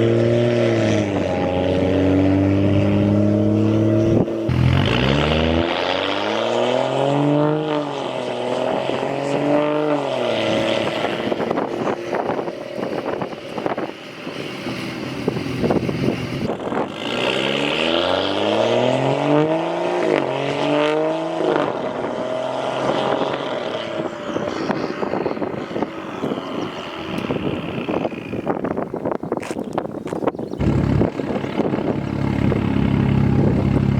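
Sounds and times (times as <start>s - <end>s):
car engine accelerating hard: 0.0s - 28.8s, 30.6s - 33.9s
exhaust pops and crackles: 28.4s - 33.9s.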